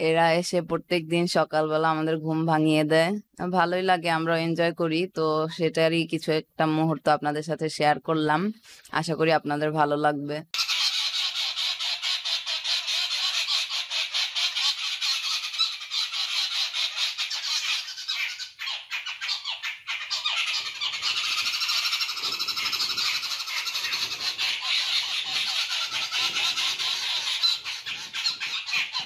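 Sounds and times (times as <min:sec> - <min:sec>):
flock of birds squawking: 0:10.6 - 0:29.0.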